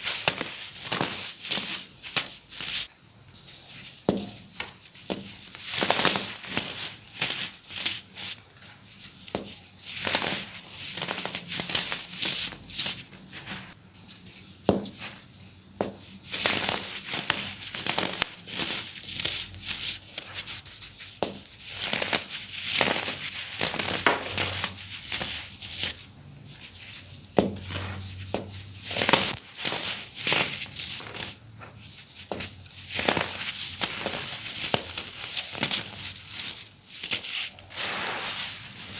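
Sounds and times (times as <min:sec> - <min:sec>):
baking soda crunching: 0:23.4 - 0:25.6, 0:28.9 - 0:30.2.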